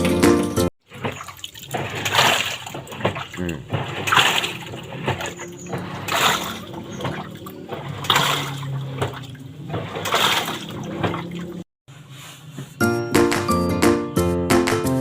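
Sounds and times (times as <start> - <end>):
water churning in washing machine: 0.8 - 11.7
washing machine motor hum: 0.9 - 11.6
knocking in washing machine: 1.0 - 11.6.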